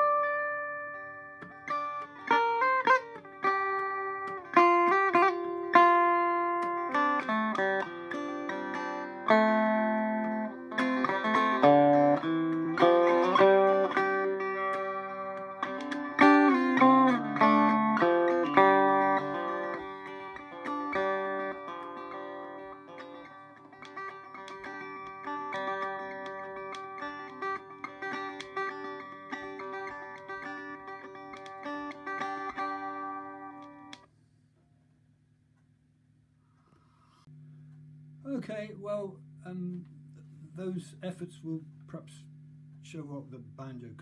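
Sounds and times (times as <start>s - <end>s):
electric banjo picking: 0.0s - 34.1s.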